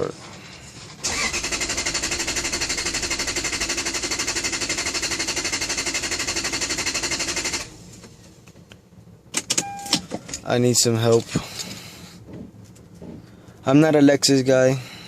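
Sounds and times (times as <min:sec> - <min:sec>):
starter solenoid rapid clicking: 0:01.0 - 0:07.7.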